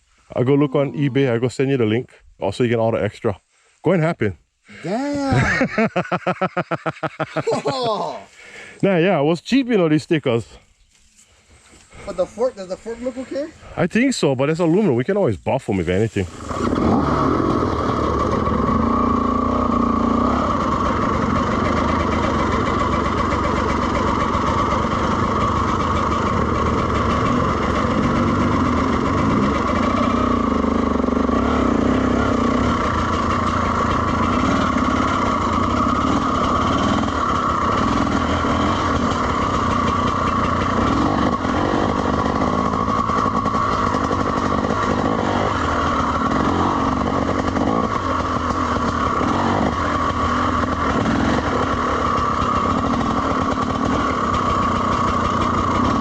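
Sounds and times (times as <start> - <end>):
dirt bike engine running: 5.2 - 7.7, 16.2 - 56.0.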